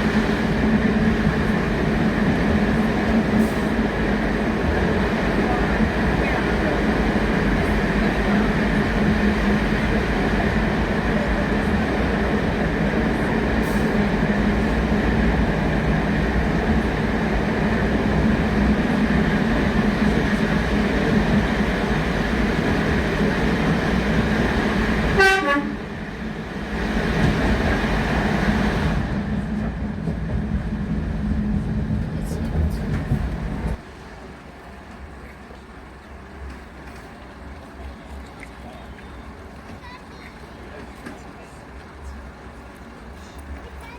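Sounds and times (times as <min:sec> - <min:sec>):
train rumbling: 0:00.0 - 0:43.9
train horn toot: 0:25.1 - 0:25.9.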